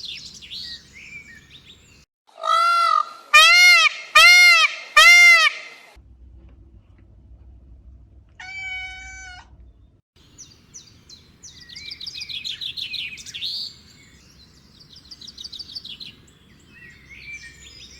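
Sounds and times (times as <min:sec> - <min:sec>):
animal cry: 0:08.4 - 0:09.6.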